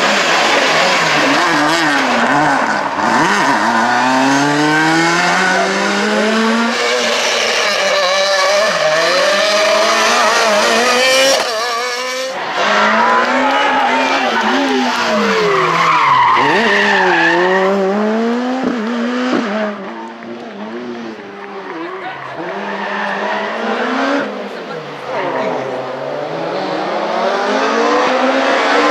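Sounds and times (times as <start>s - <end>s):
rally car engine revving: 0.0s - 28.9s.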